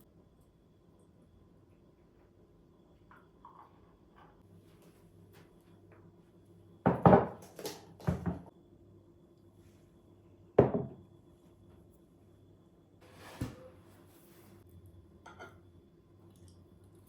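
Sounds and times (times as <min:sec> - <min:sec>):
household objects knocking and clattering: 0:06.9 - 0:08.5.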